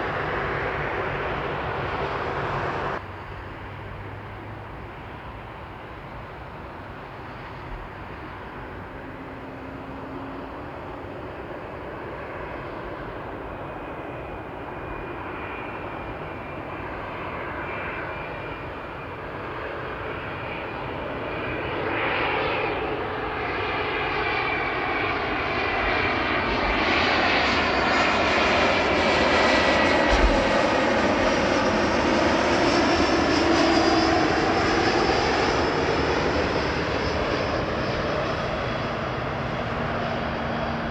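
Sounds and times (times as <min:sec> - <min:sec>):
sweeping jet whine: 0:00.0 - 0:03.6, 0:05.0 - 0:40.9
jet airliner engines: 0:00.0 - 0:40.9.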